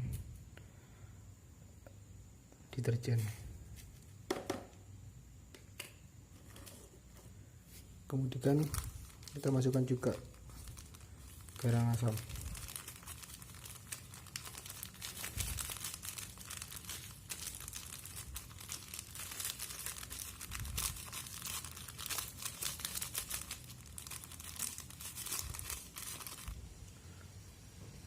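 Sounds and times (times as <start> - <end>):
plastic packet crinkling: 8.1 - 26.6.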